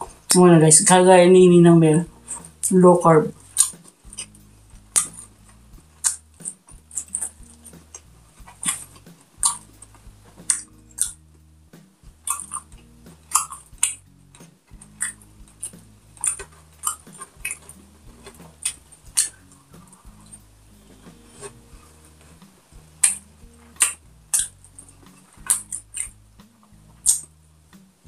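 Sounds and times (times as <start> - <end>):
wet chewing and lip smacks: 3.4 - 11.2, 12.2 - 20.4, 23.0 - 26.2, 27.0 - 27.3.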